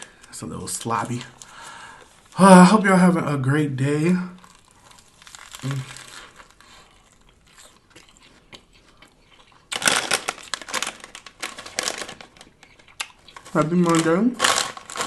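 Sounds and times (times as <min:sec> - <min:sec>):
wrapper crinkling: 0:04.3 - 0:07.8, 0:09.6 - 0:15.0
packaging rustling: 0:04.4 - 0:07.3, 0:09.8 - 0:15.0.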